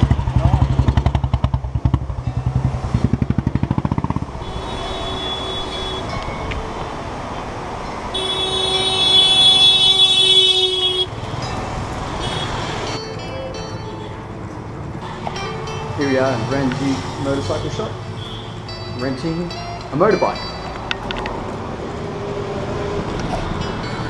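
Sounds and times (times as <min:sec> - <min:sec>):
vehicle horns honking: 0:04.4 - 0:06.5, 0:08.1 - 0:11.4, 0:12.1 - 0:13.0, 0:17.5 - 0:18.9.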